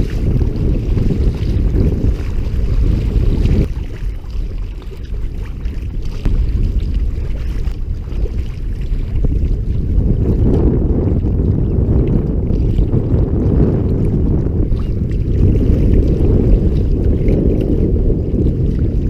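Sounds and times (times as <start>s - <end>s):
water splashing around kayak: 0.0s - 19.0s
wind buffeting microphone: 0.0s - 19.0s.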